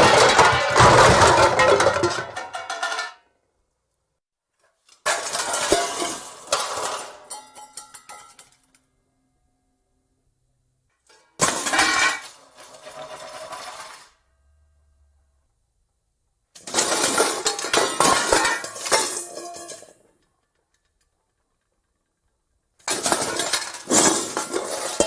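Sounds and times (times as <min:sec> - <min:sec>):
pots and pans clattering: 0:00.0 - 0:03.2, 0:05.1 - 0:08.6, 0:11.1 - 0:14.1, 0:16.6 - 0:20.0, 0:22.8 - 0:25.0.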